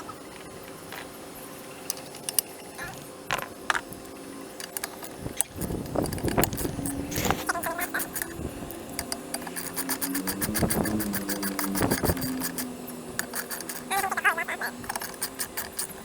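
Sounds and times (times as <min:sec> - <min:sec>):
metal tools clicking and clinking: 0:04.6 - 0:16.0.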